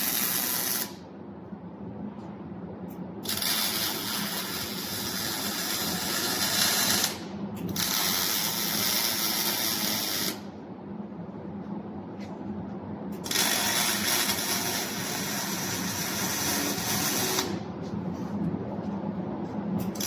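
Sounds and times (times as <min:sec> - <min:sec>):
welding arc crackling: 0:00.0 - 0:01.0, 0:03.2 - 0:10.4, 0:13.2 - 0:17.6
steady low hum: 0:00.0 - 0:20.0.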